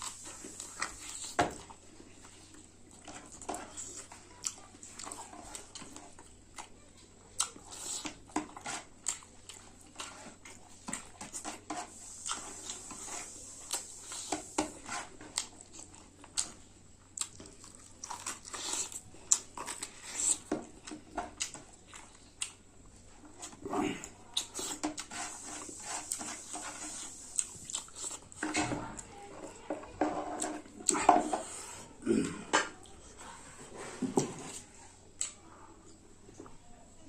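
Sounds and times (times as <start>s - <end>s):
person chewing with mouth smacks: 0.0s - 6.8s, 7.4s - 22.6s, 23.2s - 28.4s.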